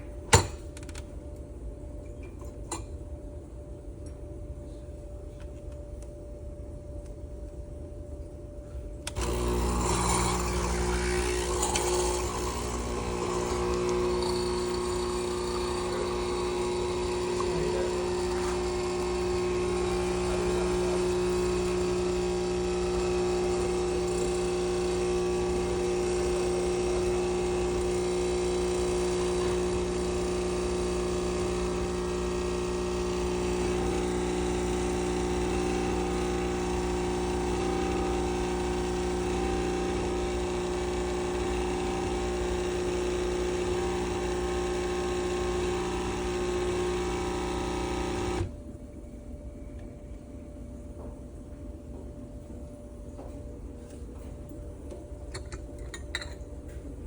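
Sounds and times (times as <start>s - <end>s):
coffee machine buzzing: 9.0s - 48.6s.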